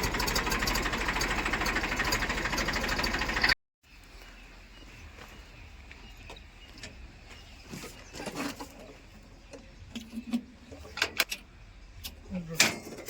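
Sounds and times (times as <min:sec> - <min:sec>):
diesel engine idling: 0:00.0 - 0:03.6.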